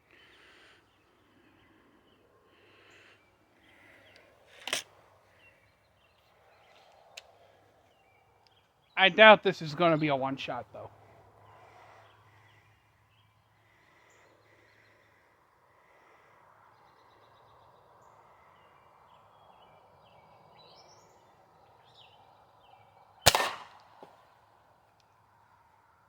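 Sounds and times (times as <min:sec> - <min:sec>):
pellet rifle shot: 0:23.3 - 0:24.0.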